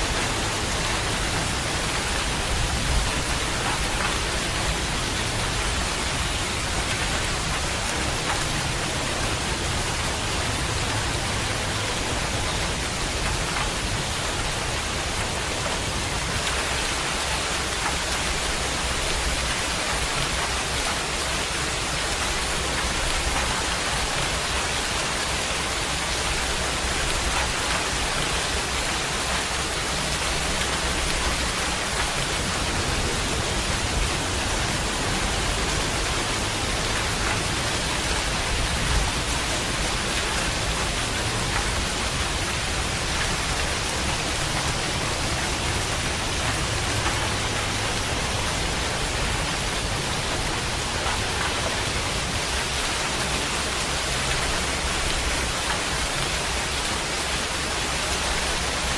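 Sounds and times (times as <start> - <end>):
heavy rain hiss: 0.0 - 58.9.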